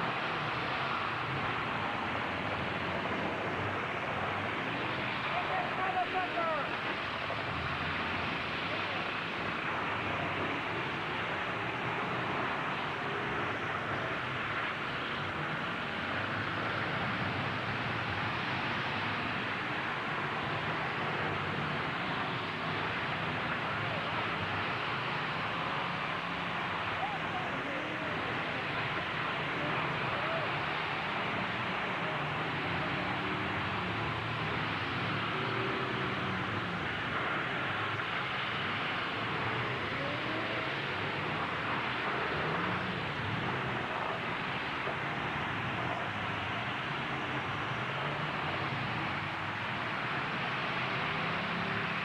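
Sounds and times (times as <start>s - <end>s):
arena noise: 0.0s - 52.0s
truck engines running: 0.0s - 52.0s.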